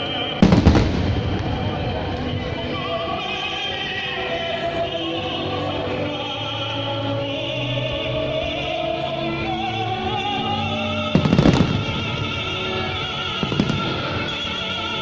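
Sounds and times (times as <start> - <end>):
operatic orchestral music: 0.0 - 15.0
firework bangs: 0.4 - 2.7, 11.1 - 14.7.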